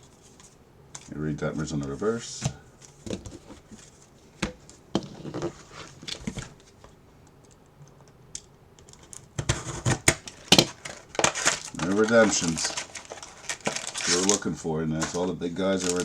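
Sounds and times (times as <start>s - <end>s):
cards clicking and rustling: 8.8s - 16.0s.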